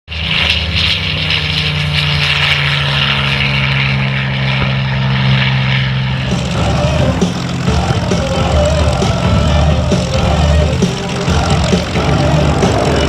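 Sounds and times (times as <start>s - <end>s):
propeller plane engine droning: 0.1s - 13.0s.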